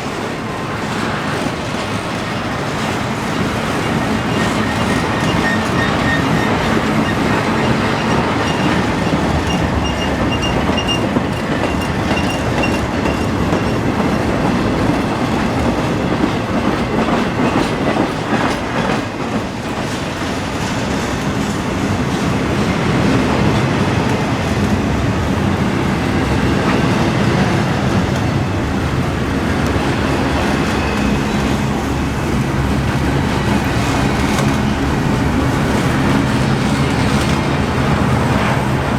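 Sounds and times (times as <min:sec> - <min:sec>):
freight train wheels clicking: 0:00.0 - 0:38.9
faint high squeal: 0:30.2 - 0:31.7.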